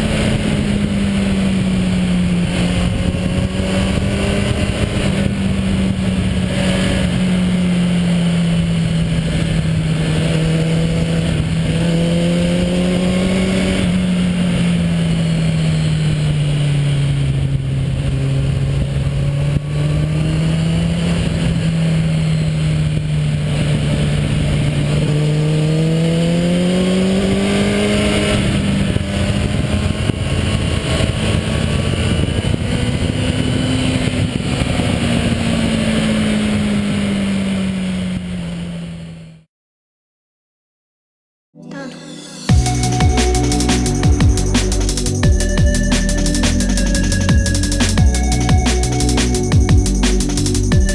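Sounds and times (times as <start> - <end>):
motorcycle engine and exhaust: 0.0 - 38.9, 41.8 - 50.9
steady rushing noise: 42.2 - 50.9.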